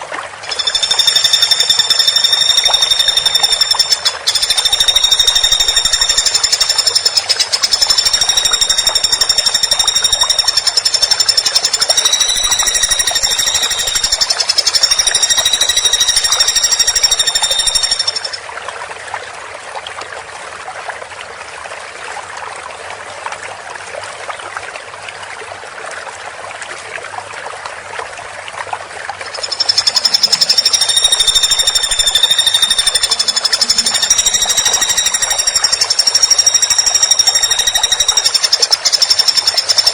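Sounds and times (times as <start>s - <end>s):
woodpecker trilling rattle: 0.4s - 18.4s, 29.3s - 39.9s.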